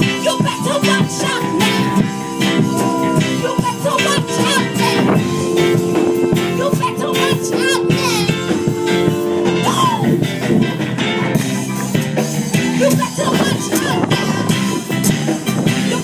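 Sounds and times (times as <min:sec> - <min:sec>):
song with guitar and drums: 0:00.0 - 0:16.0.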